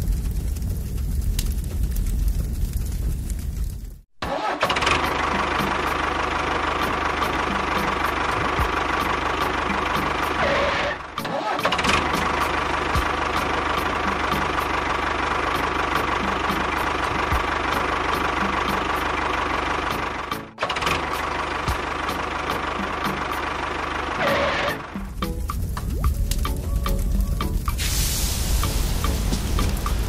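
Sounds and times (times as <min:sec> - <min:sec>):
light irregular ticking: 0:25.0 - 0:27.8.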